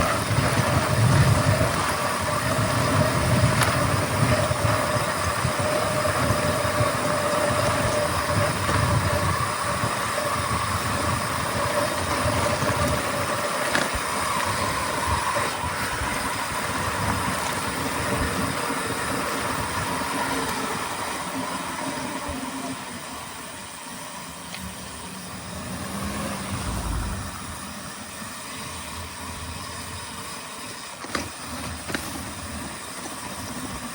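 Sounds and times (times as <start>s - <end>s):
bike tyres rolling over track: 0.0s - 33.9s
wind on microphone: 25.9s - 27.8s.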